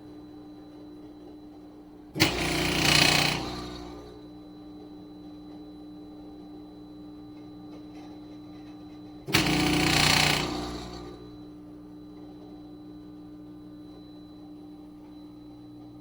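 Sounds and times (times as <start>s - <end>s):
espresso machine humming: 2.2s - 4.2s, 9.3s - 11.4s.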